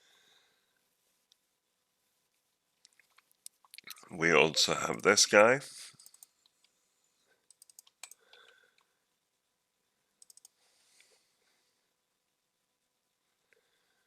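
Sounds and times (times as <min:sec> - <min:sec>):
computer keyboard clicks: 0:07.5 - 0:08.5, 0:10.2 - 0:10.5.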